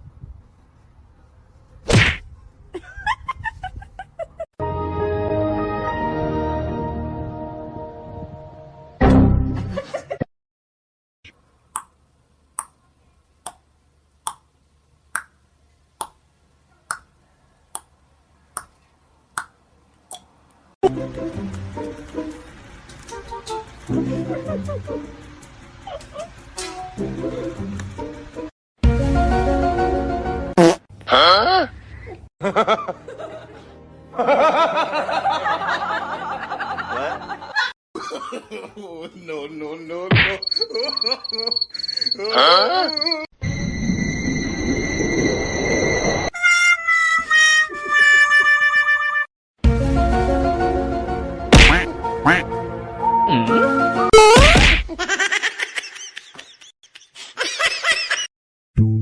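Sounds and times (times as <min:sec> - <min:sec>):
music: 0:04.6 - 0:09.8, 0:20.8 - 0:30.6, 0:33.0 - 0:36.5, 0:46.4 - 0:54.1
people laughing: 0:24.1 - 0:25.0, 0:32.4 - 0:39.3.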